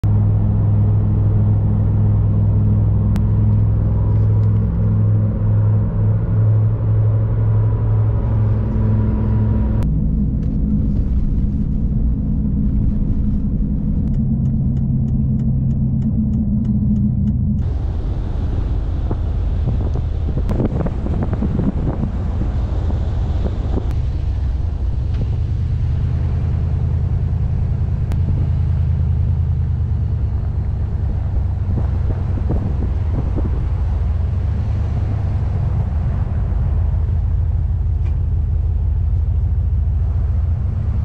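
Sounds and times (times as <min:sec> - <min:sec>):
rushing noise: 0:00.0 - 0:38.0
vehicle engine and road noise: 0:00.0 - 0:41.0.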